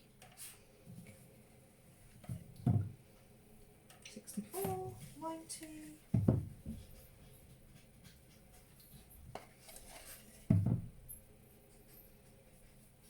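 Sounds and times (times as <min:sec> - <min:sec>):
light scraping: 0:09.4 - 0:10.5.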